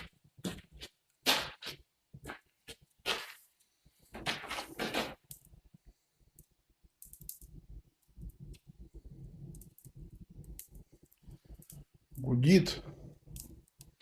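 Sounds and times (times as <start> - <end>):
fire crackling and popping: 0.0 - 14.0
low rumble of fire: 0.0 - 14.0.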